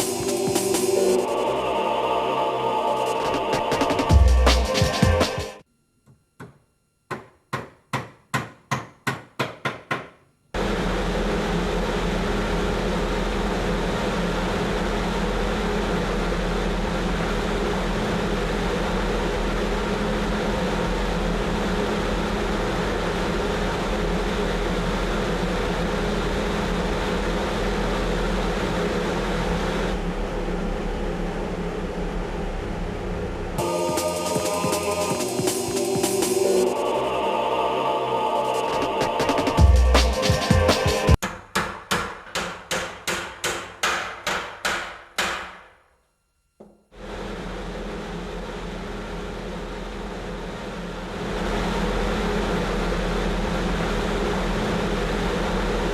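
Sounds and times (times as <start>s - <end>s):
blower rush of air with hum: 0.0s - 5.6s, 10.6s - 41.2s, 47.0s - 55.9s
knocks: 6.1s - 10.2s, 41.2s - 45.7s.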